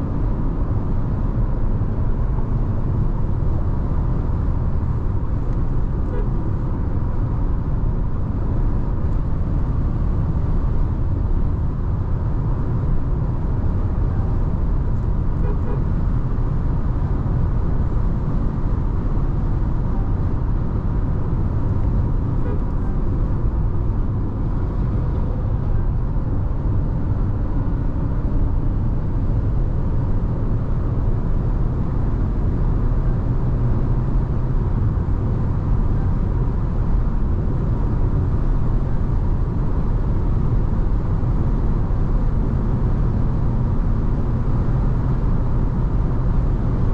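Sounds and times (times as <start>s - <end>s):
car driving rumble: 0.0s - 46.9s.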